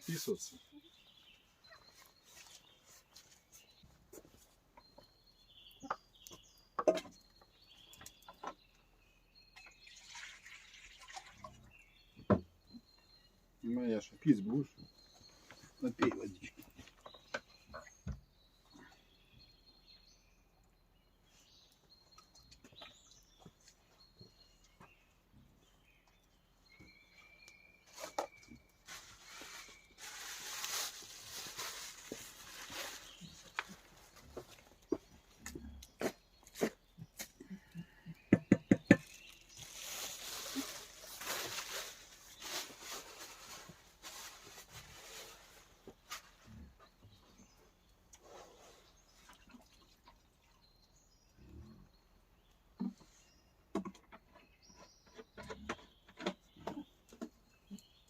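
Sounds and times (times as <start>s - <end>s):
high bird calls: 0.0s - 9.8s
small birds chirping: 0.0s - 58.0s.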